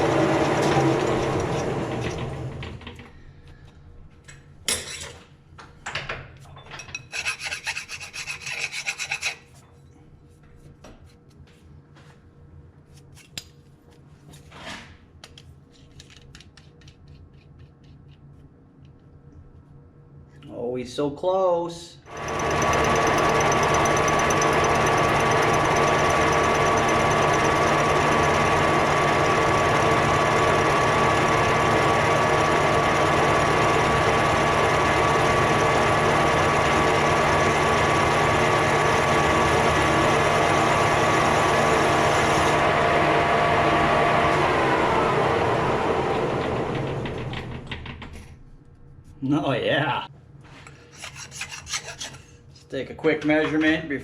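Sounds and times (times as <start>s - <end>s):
metal lathe gear whine: 0.0s - 2.6s, 22.1s - 47.0s.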